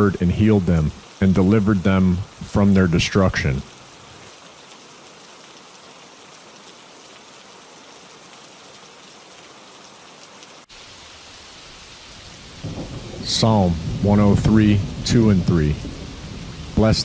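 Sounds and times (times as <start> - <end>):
steady rainfall: 0.0 - 17.0.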